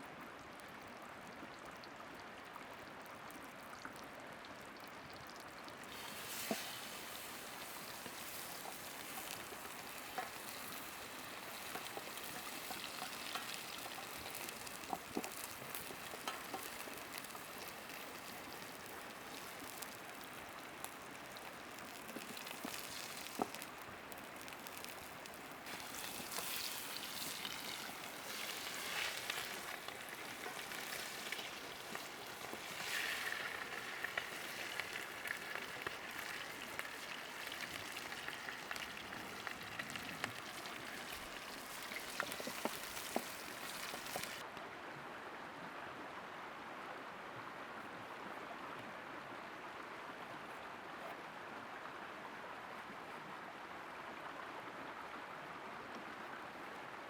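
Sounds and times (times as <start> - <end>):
meat sizzling in a pan: 5.8 - 44.4.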